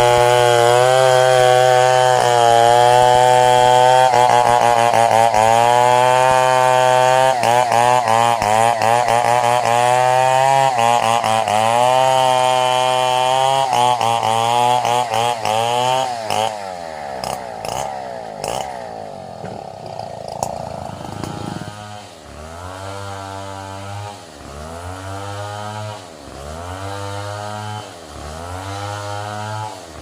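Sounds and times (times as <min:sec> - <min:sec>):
chainsaw engine revving: 0:00.0 - 0:30.0.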